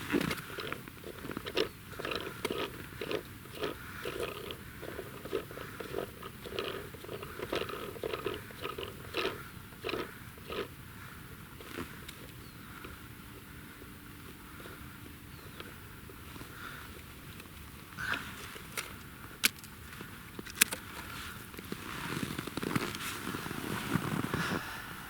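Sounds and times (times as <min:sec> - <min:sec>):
footsteps crunching in snow: 0:20.9 - 0:24.6.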